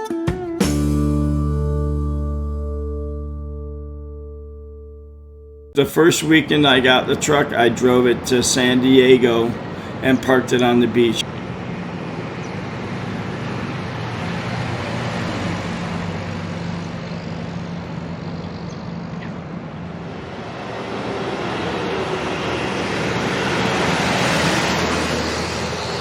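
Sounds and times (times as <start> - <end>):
road or wind noise: 5.8 - 26.0
vehicle engine running: 5.9 - 26.0.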